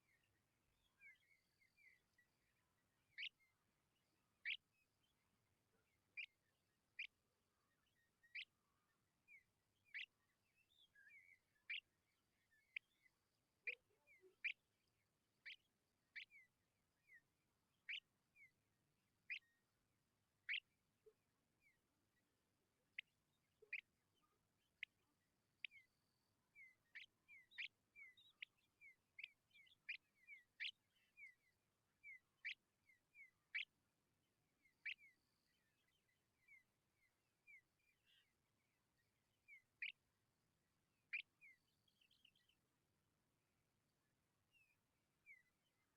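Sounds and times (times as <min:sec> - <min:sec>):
soft twittering chirps: 0:00.0 - 0:18.6, 0:22.9 - 0:33.8, 0:41.1 - 0:42.7.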